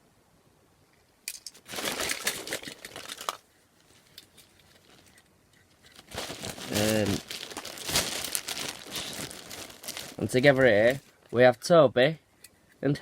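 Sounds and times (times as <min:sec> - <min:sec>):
bag rustling and crinkling: 0:01.5 - 0:11.4.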